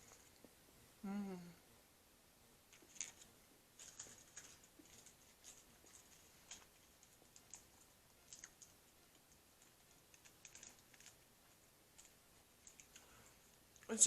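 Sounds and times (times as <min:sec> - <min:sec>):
person chewing food: 0:02.7 - 0:13.9.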